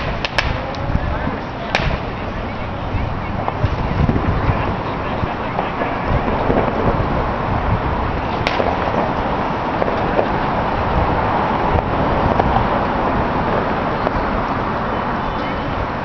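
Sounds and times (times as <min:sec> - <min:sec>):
sharp firework crack: 0:00.0 - 0:00.9, 0:01.6 - 0:02.4, 0:03.4 - 0:07.1, 0:08.2 - 0:10.7
distant fireworks rumbling: 0:00.0 - 0:16.0.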